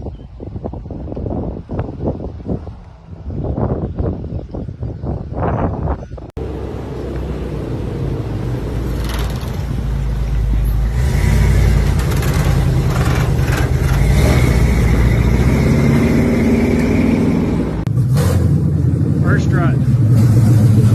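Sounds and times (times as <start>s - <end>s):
truck engine accelerating: 6.4s - 20.9s.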